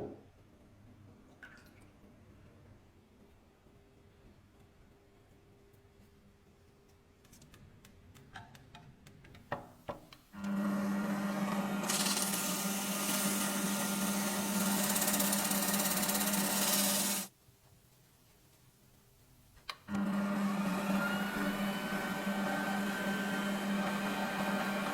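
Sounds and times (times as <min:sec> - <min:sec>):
small electric motor whirring: 0:10.4 - 0:17.3.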